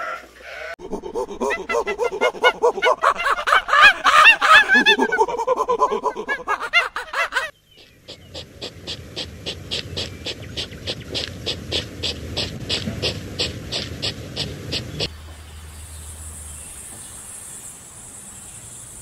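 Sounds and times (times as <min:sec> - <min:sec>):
fast-warbling animal call: 0:00.8 - 0:15.1
hedgehog sniffing and snuffling: 0:07.8 - 0:15.1.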